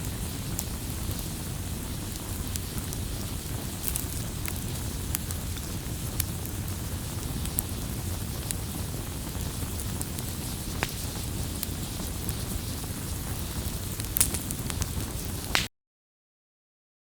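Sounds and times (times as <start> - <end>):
campfire flames rushing: 0.0 - 15.7
fire crackling pops: 0.0 - 15.7.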